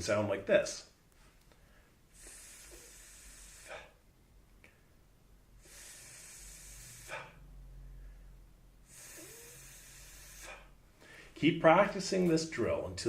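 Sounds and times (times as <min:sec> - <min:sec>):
person hissing a th sound: 0:02.1 - 0:04.0, 0:05.6 - 0:07.5, 0:08.9 - 0:10.8.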